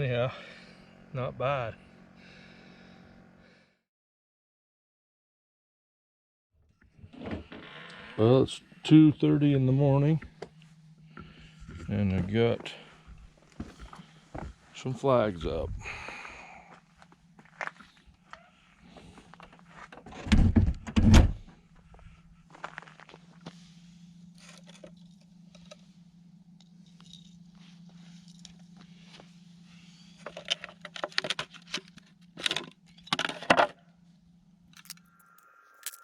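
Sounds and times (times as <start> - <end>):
steady low hum: 0.0 - 3.8, 7.1 - 36.0
rattling clinks and knocks: 26.7 - 27.5.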